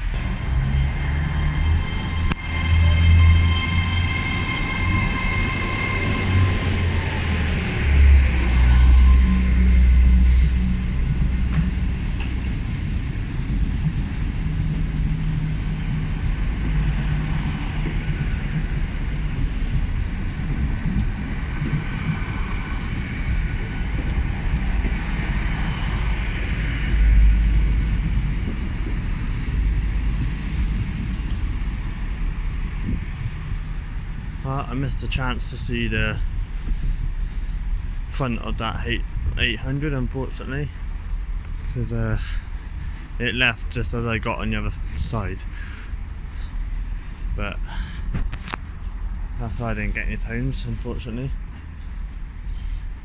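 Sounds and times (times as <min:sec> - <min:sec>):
train electric whine: 0:00.0 - 0:40.1
low train rumble: 0:00.0 - 0:53.0.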